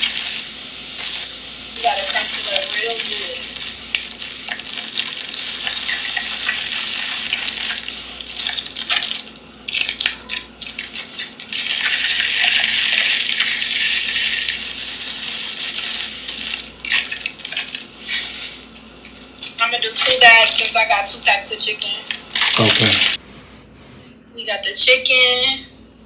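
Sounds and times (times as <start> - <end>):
chips crushed in crinkly bag: 4.0 - 18.6.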